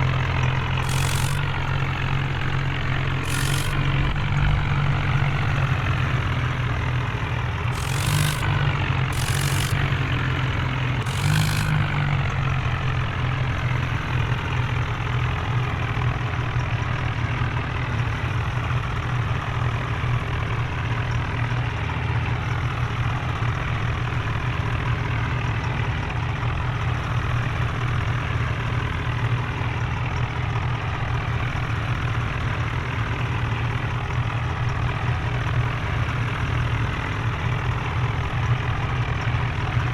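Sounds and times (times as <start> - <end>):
heavy diesel engine running: 0.0 - 39.9
short bursts of hiss: 0.8 - 1.7, 3.3 - 3.9, 7.8 - 10.0, 11.1 - 12.0.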